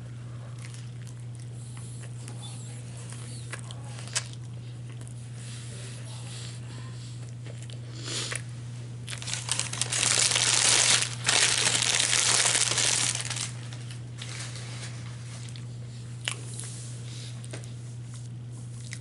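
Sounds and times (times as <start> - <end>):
paper wrapping crinkling: 9.1 - 15.3.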